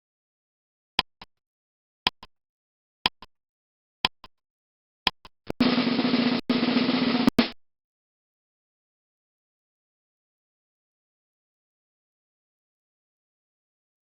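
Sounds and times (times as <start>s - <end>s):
timer tick-tock: 1.0s - 1.4s, 2.1s - 2.4s, 3.0s - 3.4s, 4.0s - 4.4s, 5.1s - 5.7s, 7.3s - 7.6s.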